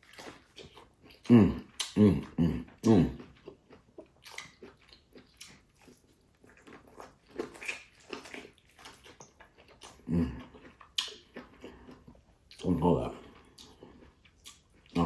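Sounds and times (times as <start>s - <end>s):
chewing and crunching: 0.0s - 15.0s
wet mouth clicks: 0.2s - 3.2s, 4.2s - 4.6s, 10.9s - 11.3s.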